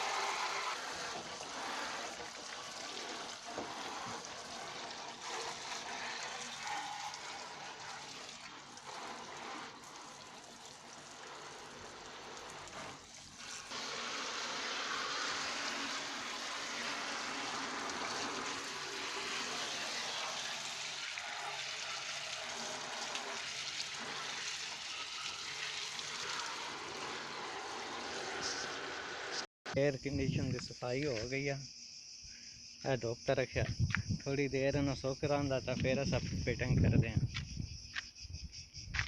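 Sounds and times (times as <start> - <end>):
water running and splashing: 0.0 - 29.5.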